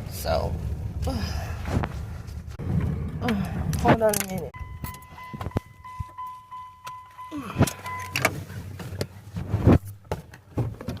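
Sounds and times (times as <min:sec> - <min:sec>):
high electronic warning tone: 0:04.6 - 0:08.2.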